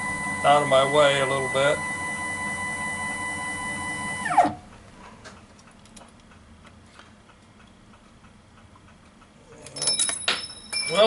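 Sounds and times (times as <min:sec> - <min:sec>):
milling machine motor whining: 0:00.0 - 0:04.6.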